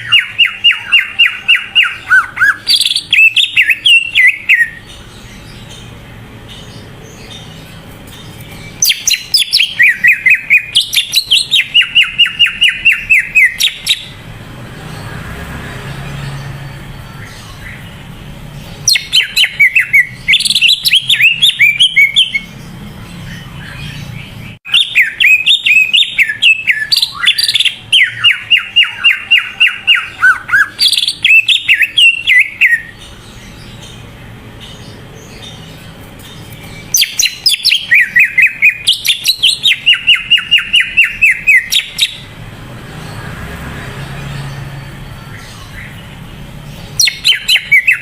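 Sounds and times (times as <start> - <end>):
bird singing whistled notes: 0.0 - 5.9, 8.3 - 14.2, 18.8 - 22.6, 23.2 - 34.0, 36.4 - 42.3, 46.7 - 48.0.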